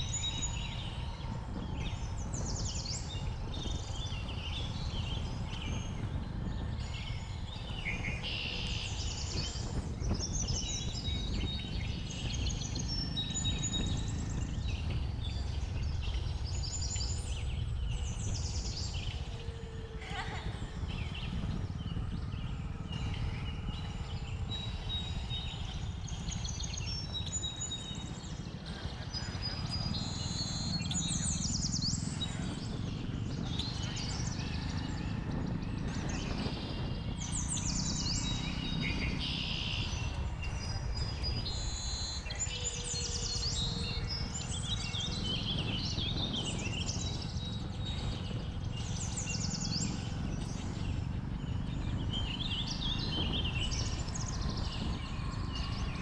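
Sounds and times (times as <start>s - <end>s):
birds chirping: 0.0s - 56.0s
motorcycle moving: 0.0s - 56.0s
wind rumble: 0.0s - 56.0s.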